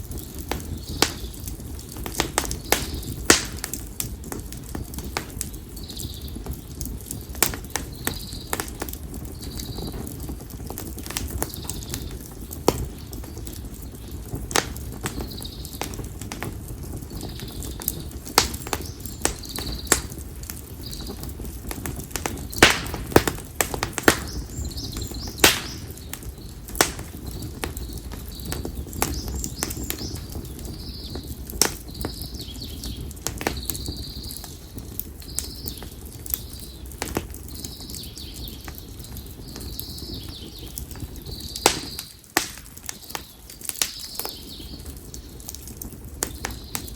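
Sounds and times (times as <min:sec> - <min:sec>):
campfire crackling and popping: 0:00.0 - 0:46.9
small bird chirping: 0:24.1 - 0:34.6.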